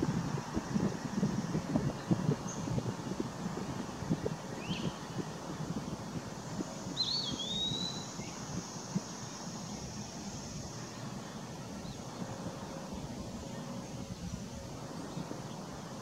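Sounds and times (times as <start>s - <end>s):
bird whistling slurred note: 7.0s - 8.3s.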